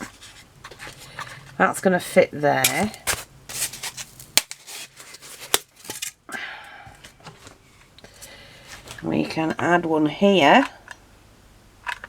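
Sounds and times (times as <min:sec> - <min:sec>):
craft materials rustling: 0:00.0 - 0:06.3.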